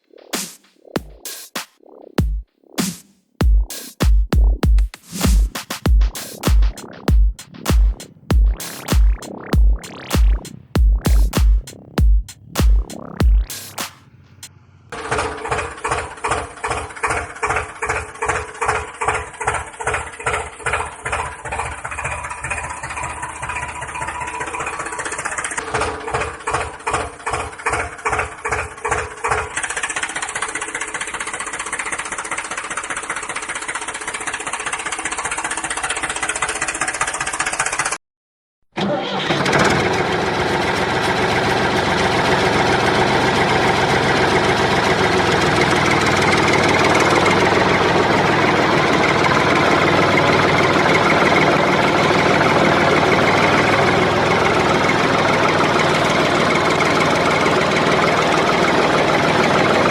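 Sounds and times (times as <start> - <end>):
motor running: 39.8 - 59.9.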